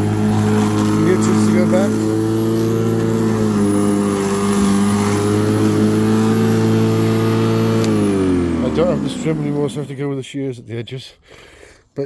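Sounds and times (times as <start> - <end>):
electric lawnmower humming: 0.0 - 9.9.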